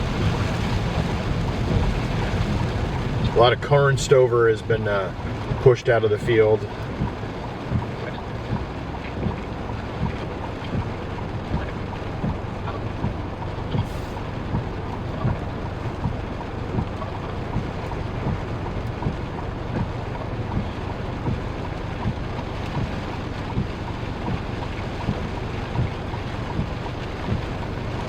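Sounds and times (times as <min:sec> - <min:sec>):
rain on a vehicle: 0:00.0 - 0:28.0
soft regular thump: 0:06.9 - 0:21.4, 0:22.0 - 0:27.5.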